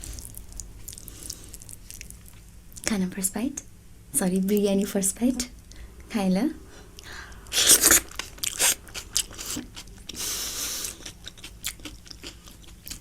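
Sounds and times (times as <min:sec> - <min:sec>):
close chewing with wet mouth clicks: 0:07.6 - 0:13.0.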